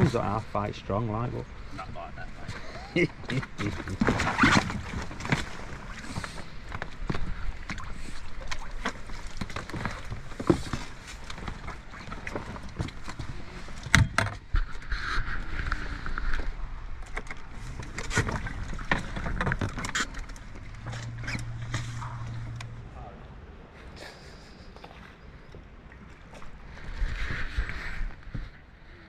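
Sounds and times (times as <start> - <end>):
knocks and clatter on a boat: 1.8 - 22.8
low hum: 11.7 - 29.0.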